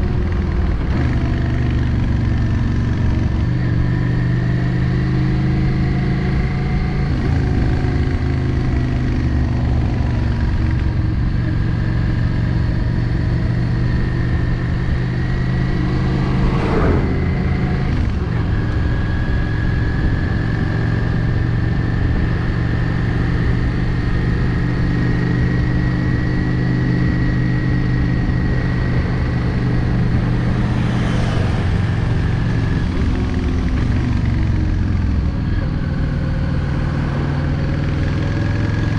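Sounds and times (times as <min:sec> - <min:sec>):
motorcycle engine running: 0:00.0 - 0:38.9
brief rushing sound: 0:14.9 - 0:19.3.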